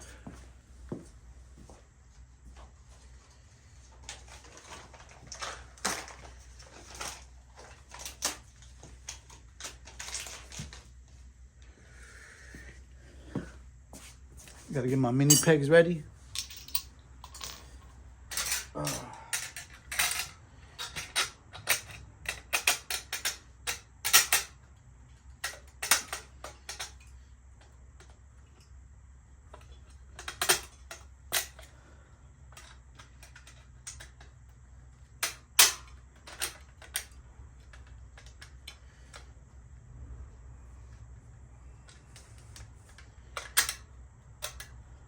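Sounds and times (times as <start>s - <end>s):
small metal parts clinking: 4.0s - 10.8s, 15.2s - 15.7s, 16.3s - 28.7s, 29.5s - 31.7s, 32.5s - 39.3s, 41.8s - 44.8s.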